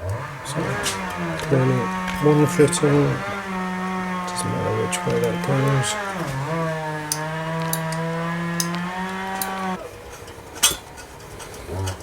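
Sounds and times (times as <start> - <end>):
man humming low: 0.3 - 9.0, 11.7 - 12.0
clicks of parts handled: 7.0 - 12.0.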